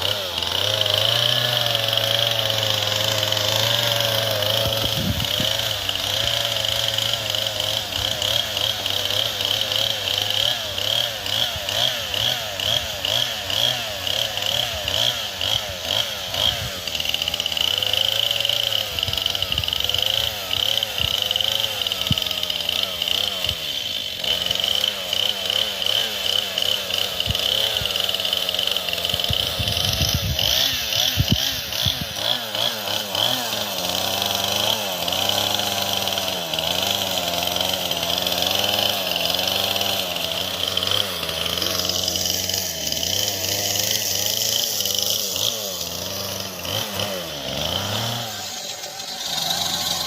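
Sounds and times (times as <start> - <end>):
chainsaw cutting wood: 0.0 - 50.0.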